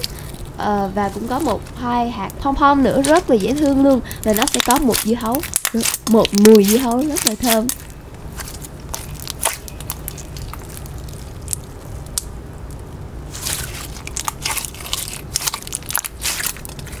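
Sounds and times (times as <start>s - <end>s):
slime squishing with sticky clicks: 0.0s - 17.0s.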